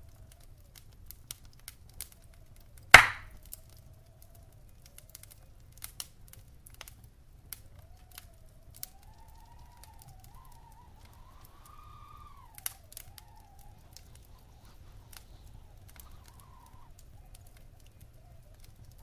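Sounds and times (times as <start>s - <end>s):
wood fire crackling: 0.0s - 19.0s
loud fire pop: 3.0s - 3.3s
faint wavering whistle tone: 8.3s - 16.9s.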